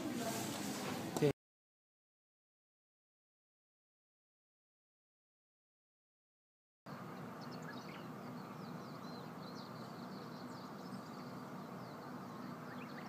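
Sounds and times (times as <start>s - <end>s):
birds chirping and singing: 6.9s - 13.0s
low background hum: 6.9s - 13.0s.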